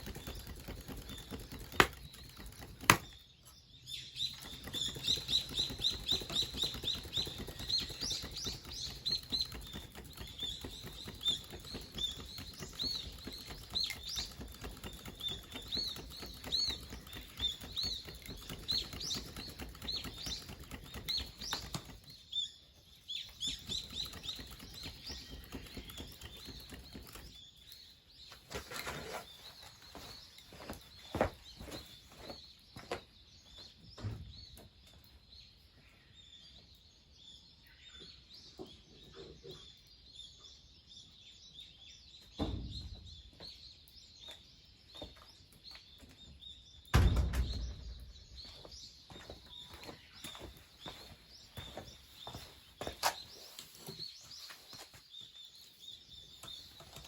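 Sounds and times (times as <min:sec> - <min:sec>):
wood fire crackling and popping: 0:00.0 - 0:03.2.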